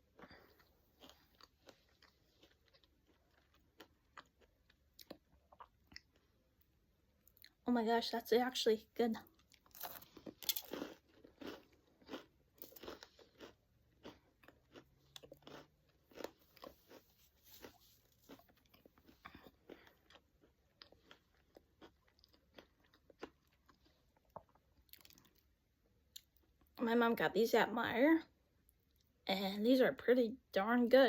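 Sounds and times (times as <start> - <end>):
crunchy chewing: 0.0 - 6.3, 9.2 - 25.5.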